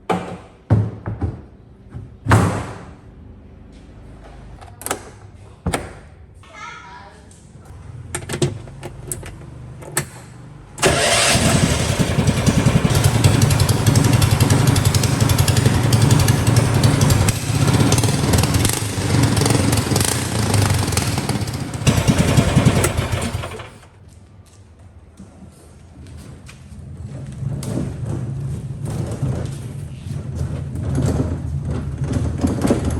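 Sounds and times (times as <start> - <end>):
small engine low pulsing rumble: 11.0 - 23.1.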